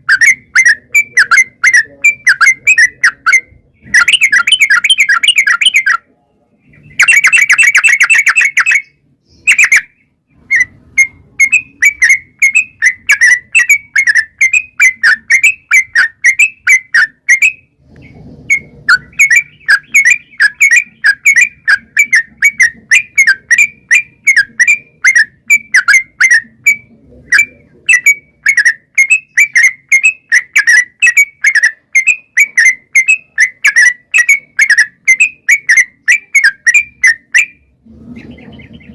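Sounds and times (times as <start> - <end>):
bird singing whistled notes: 0.0 - 6.1, 6.7 - 17.8, 18.5 - 38.9
bird trill: 0.0 - 38.9.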